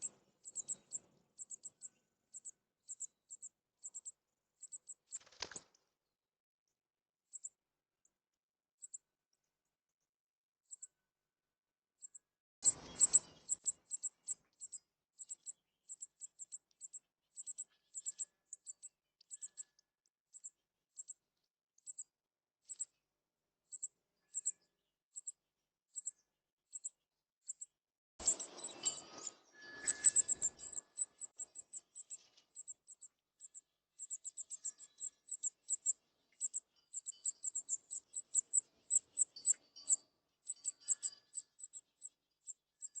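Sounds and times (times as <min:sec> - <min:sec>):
nestling chirping for food: 0:00.0 - 0:05.6, 0:12.0 - 0:21.2, 0:25.2 - 0:43.0.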